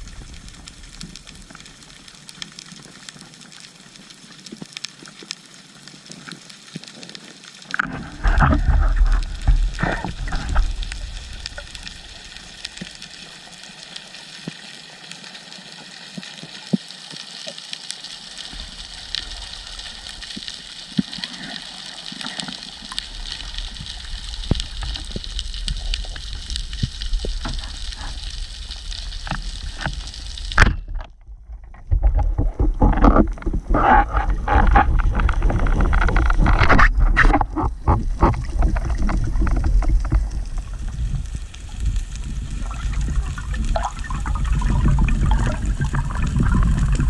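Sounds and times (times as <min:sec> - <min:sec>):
underwater rushing water: 0:00.0 - 0:47.0
snapping shrimp crackle: 0:15.7 - 0:30.9.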